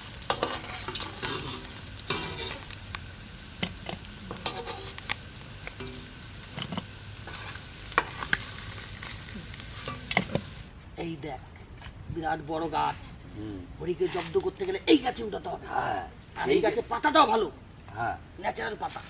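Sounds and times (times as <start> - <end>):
fish sizzling in hot oil: 0.0 - 10.7
metal spatula scraping pan: 0.3 - 2.6, 4.3 - 5.0.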